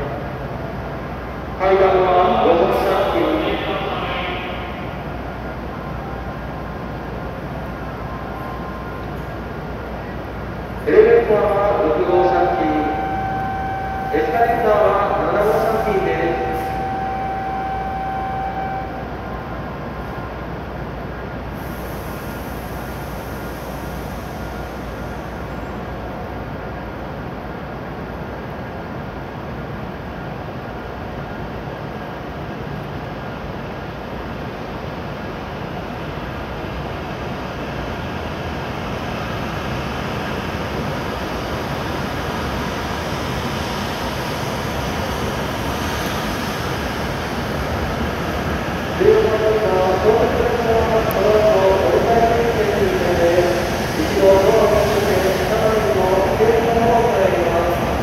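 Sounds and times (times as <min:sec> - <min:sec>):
trains idling at station: 0:00.0 - 0:58.0
train wheels rumbling: 0:33.3 - 0:58.0.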